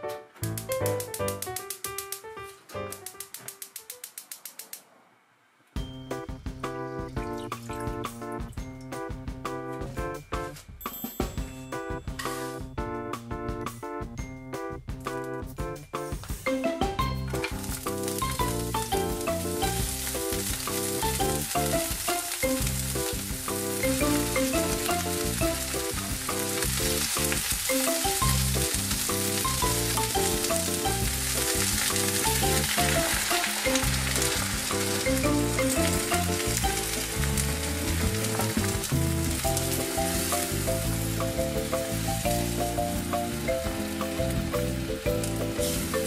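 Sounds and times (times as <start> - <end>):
food sizzling in hot oil: 17.2 - 46.0.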